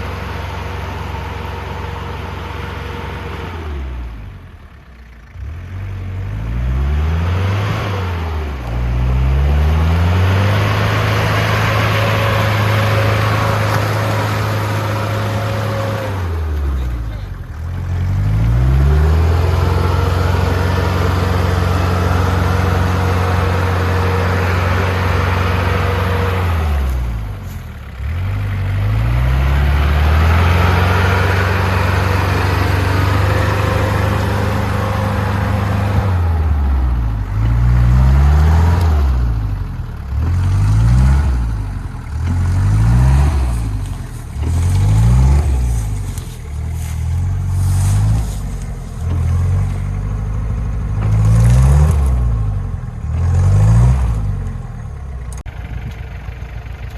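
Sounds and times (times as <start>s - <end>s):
engine revving hard: 6.3s - 17.2s, 28.0s - 39.5s, 40.1s - 49.7s, 51.0s - 54.4s.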